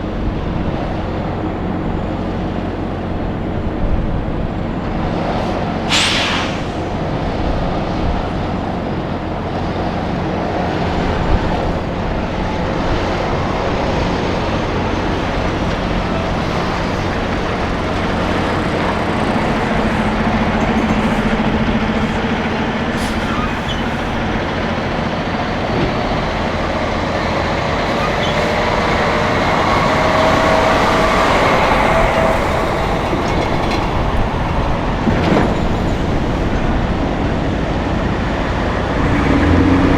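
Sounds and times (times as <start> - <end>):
diesel trucks passing: 0.0 - 39.9
air hiss: 5.9 - 7.0.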